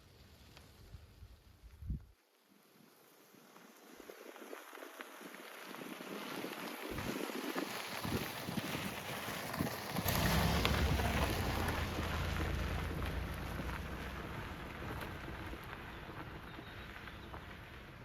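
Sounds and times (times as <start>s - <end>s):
rain falling: 4.6s - 18.0s.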